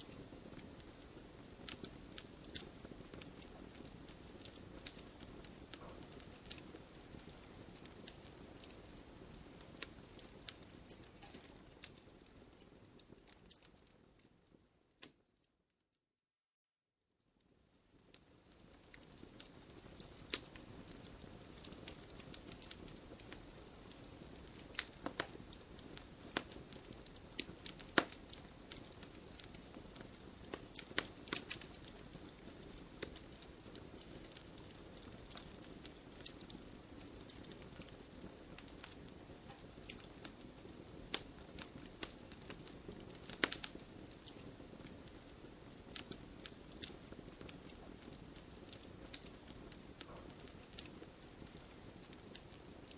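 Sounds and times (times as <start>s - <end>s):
campfire crackling: 0.0s - 15.2s, 17.7s - 52.9s.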